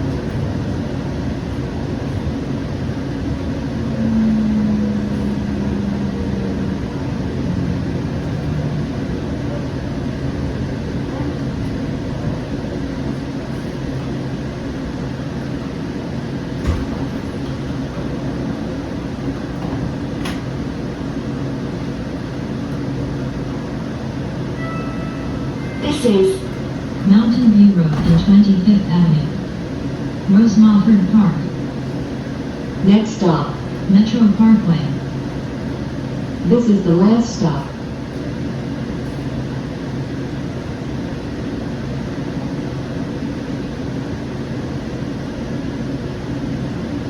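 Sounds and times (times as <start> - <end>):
train rumble: 0.0 - 47.0
train motor whine: 2.4 - 30.2.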